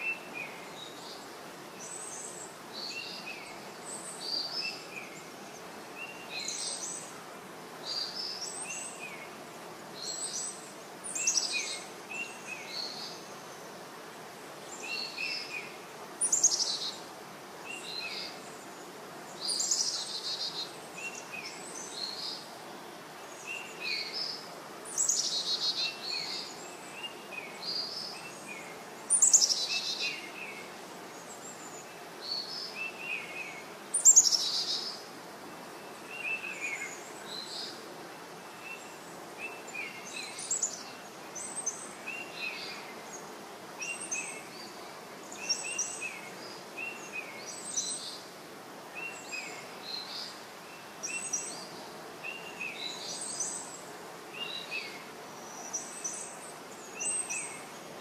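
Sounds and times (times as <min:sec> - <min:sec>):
background hiss: 0:00.0 - 0:58.0
birds chirping: 0:14.6 - 0:58.0.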